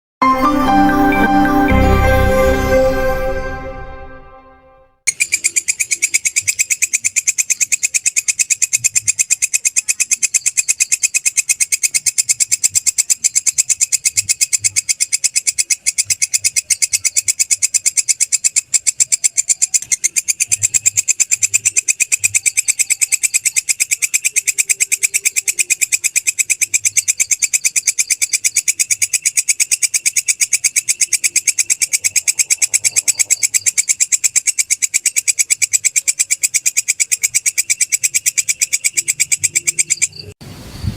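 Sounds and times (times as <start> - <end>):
katydid rasping call: 22.1 - 40.3.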